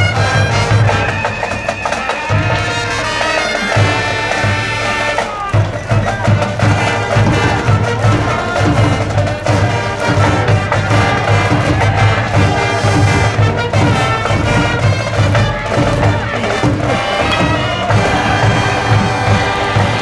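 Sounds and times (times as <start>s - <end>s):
band playing cheer tune: 0.0s - 20.0s
bass drum beat: 3.7s - 19.4s.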